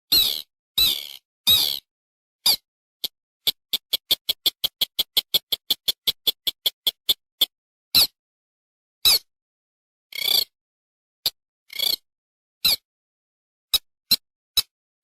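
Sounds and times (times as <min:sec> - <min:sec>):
harsh bird calls: 0:00.1 - 0:01.9
rail bird ticking notes: 0:03.5 - 0:07.2.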